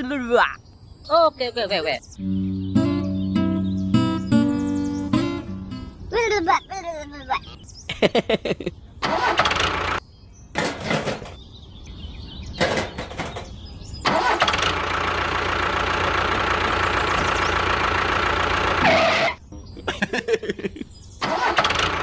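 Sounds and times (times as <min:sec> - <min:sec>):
small engine cranking: 0:09.0 - 0:10.0, 0:14.1 - 0:19.3, 0:21.2 - 0:22.0
small engine running: 0:09.0 - 0:10.0, 0:14.1 - 0:19.4, 0:21.2 - 0:22.0.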